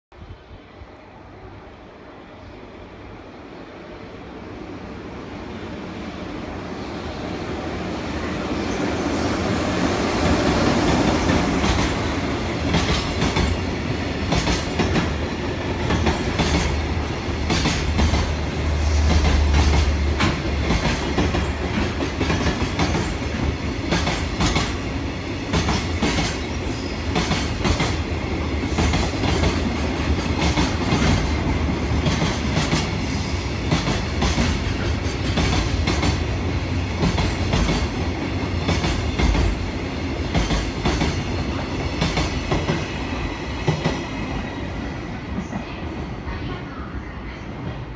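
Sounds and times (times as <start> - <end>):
freight train passing: 0.1 - 47.9.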